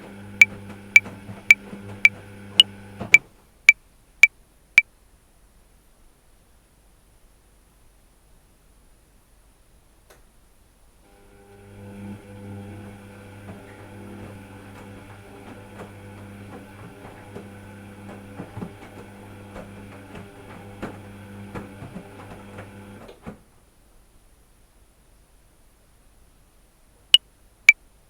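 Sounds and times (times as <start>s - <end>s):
small machine humming: 11.1s - 23.1s.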